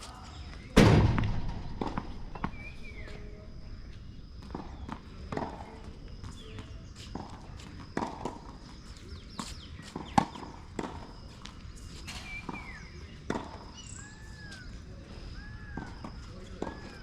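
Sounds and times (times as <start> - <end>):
knocks and footsteps on court: 0.0 - 13.8, 15.7 - 17.0
tennis ball hit: 0.8 - 6.1
shoe squeaks: 11.8 - 12.9.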